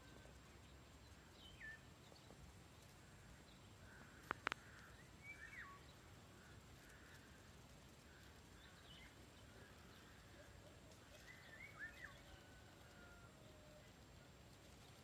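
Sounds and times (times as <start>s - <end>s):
faint birdsong: 0.0s - 15.0s
sharp clicks: 4.2s - 4.9s.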